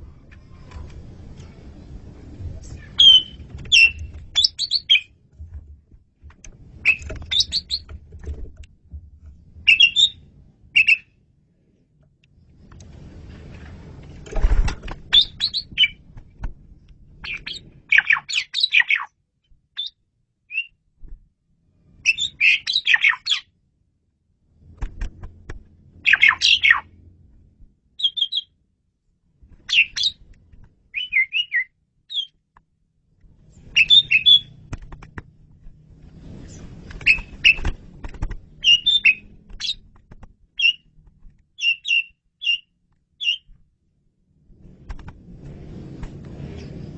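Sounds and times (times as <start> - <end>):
faint low rumble: 0.0 - 18.4, 23.4 - 30.9, 31.8 - 46.9
starling singing chirps and whistles: 3.0 - 5.1, 6.8 - 7.9, 9.7 - 10.2, 10.8 - 11.1, 15.1 - 16.0, 17.2 - 19.1, 19.8 - 20.8, 22.0 - 23.4, 26.0 - 26.9, 28.0 - 28.5, 29.7 - 30.2, 30.9 - 32.4, 33.7 - 34.6, 38.6 - 39.8, 40.6 - 40.8, 41.6 - 43.5.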